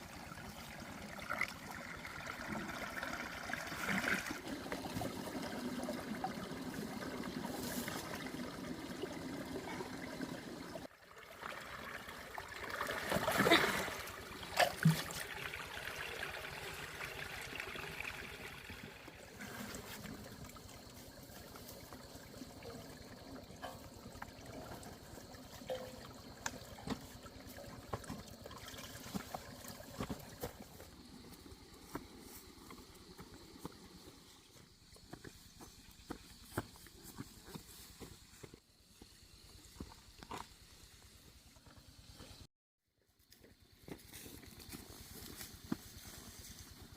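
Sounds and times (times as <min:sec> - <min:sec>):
water trickling: 0:00.0 - 0:35.1.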